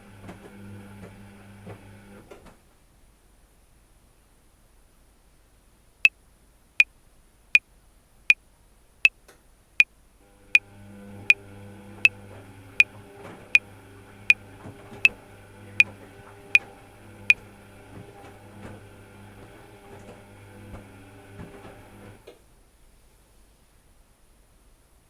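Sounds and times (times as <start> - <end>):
washing machine humming: 0.0 - 2.5, 10.2 - 22.4.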